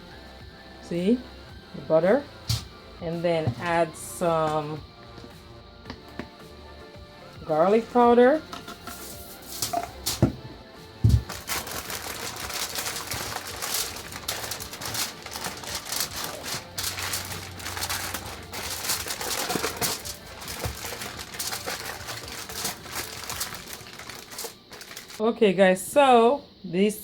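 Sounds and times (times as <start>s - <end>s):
clicking and crinkling: 11.2s - 25.2s.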